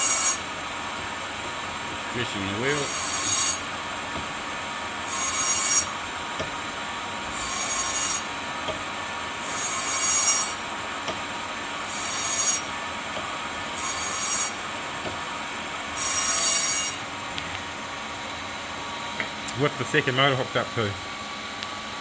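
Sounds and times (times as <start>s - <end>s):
squealing rub of grinder wheel: 13.8s - 14.6s.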